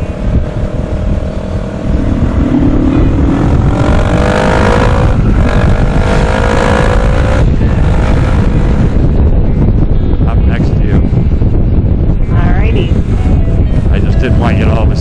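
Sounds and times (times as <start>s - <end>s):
motorcycle engine accelerating: 0.0s - 10.0s
wind rush on microphone: 0.0s - 15.0s.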